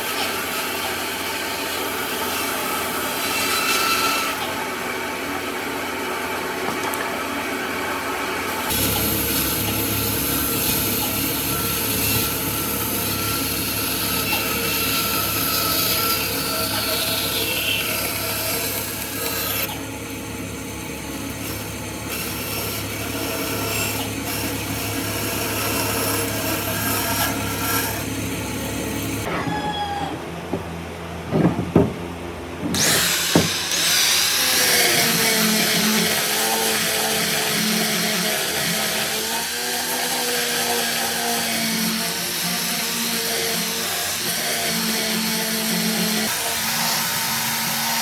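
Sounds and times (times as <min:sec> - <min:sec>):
power tool grinding wood: 0:08.5 - 0:29.3, 0:32.6 - 0:48.0.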